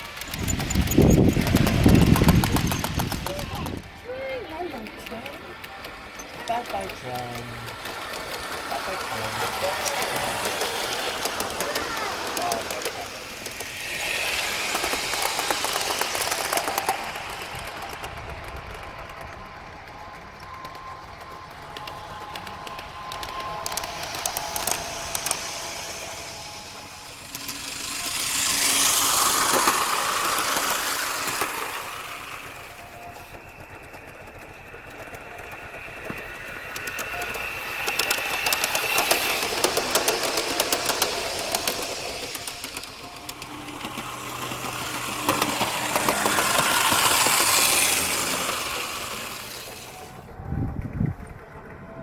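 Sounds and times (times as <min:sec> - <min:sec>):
small wheels clicking over rail joints: 0:00.0 - 0:52.0
track rumble: 0:00.0 - 0:52.0.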